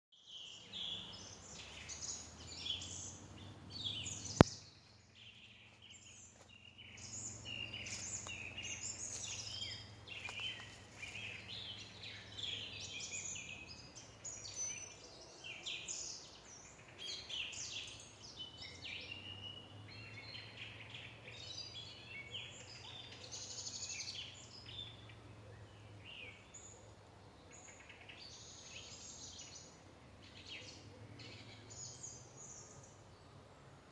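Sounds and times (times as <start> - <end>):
small birds chirping: 0.1 - 33.9
low steady hum: 0.5 - 14.5.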